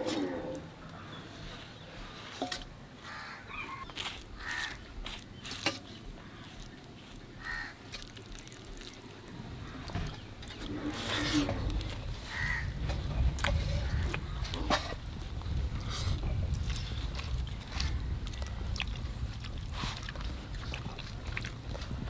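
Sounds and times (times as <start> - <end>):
bird calling: 3.0 - 4.8.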